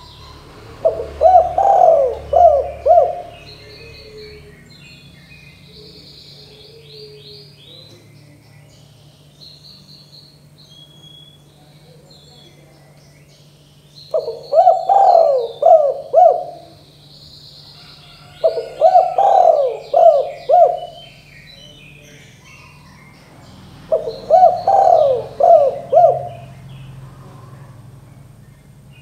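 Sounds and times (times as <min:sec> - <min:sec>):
dove cooing: 0:00.0 - 0:04.8, 0:05.5 - 0:08.0, 0:14.1 - 0:17.0, 0:17.7 - 0:27.9
small birds chirping: 0:00.0 - 0:29.0.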